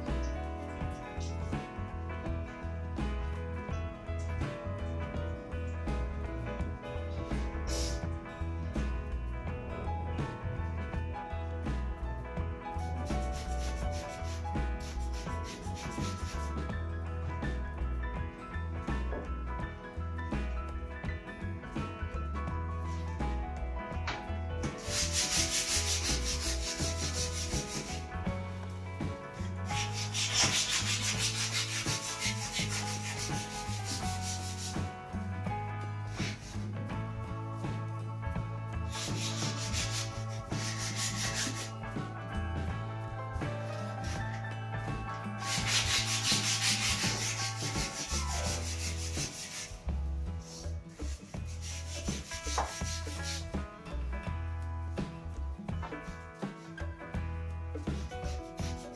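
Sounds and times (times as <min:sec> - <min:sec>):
background music: 0:00.0 - 0:58.9
sandpaper rubbing on wood: 0:07.7 - 0:08.0, 0:12.8 - 0:16.5, 0:24.8 - 0:28.0, 0:29.4 - 0:34.9, 0:36.1 - 0:36.7, 0:38.9 - 0:41.8, 0:45.4 - 0:49.8, 0:50.4 - 0:53.5, 0:57.9 - 0:58.9.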